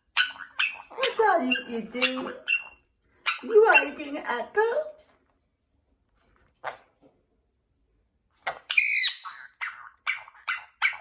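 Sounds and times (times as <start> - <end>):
parrot call: 8.4 - 11.0.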